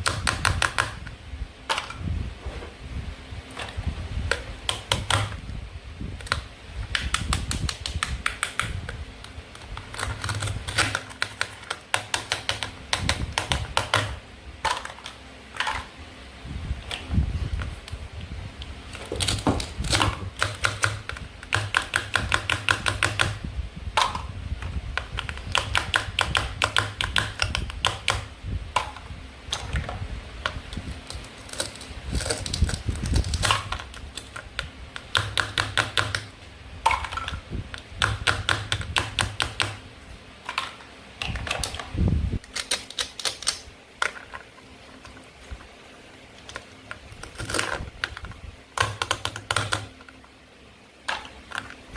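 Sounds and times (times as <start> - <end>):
plastic toy food clicking: 7.0 - 8.8, 9.8 - 14.2, 19.2 - 23.4, 42.4 - 44.2, 48.8 - 49.9.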